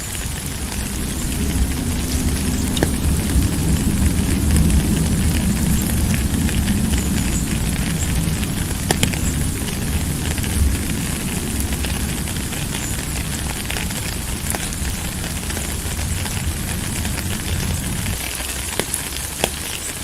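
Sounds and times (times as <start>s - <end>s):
steady rain hiss: 0.0s - 20.0s
sharp ticks: 5.7s - 9.6s.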